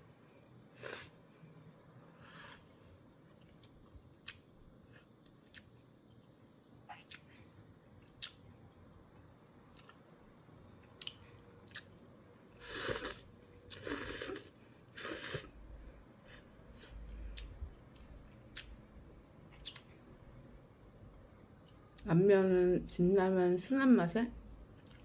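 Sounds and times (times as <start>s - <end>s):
slurping noodles: 0.8s - 1.1s, 12.6s - 15.5s.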